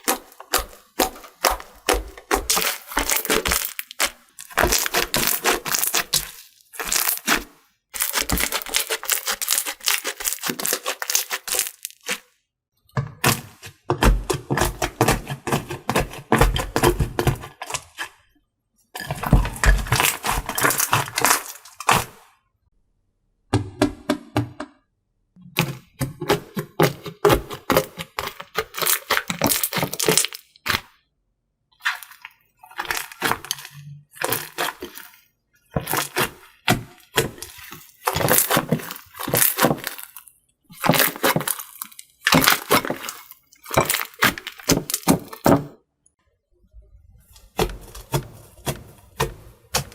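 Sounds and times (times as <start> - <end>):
slime crackling and popping: 0.0 - 12.2, 19.2 - 22.2, 27.7 - 30.9, 31.8 - 35.2, 35.8 - 45.6.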